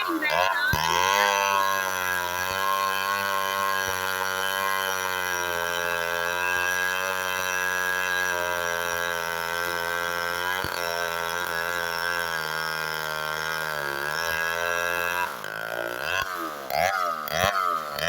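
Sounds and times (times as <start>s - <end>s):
chainsaw engine idling: 0.0s - 18.0s.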